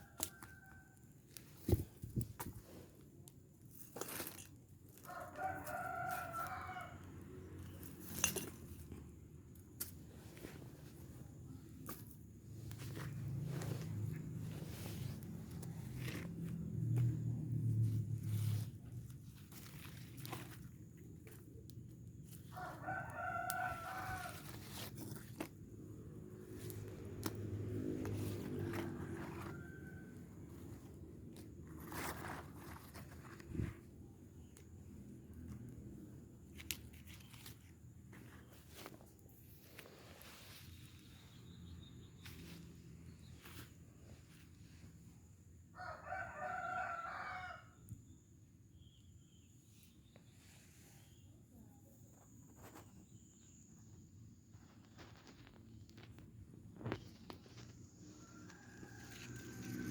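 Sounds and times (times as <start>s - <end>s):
rooster crowing: 5.0s - 7.3s, 22.5s - 24.9s, 28.1s - 30.9s, 45.7s - 47.8s, 58.1s - 59.9s.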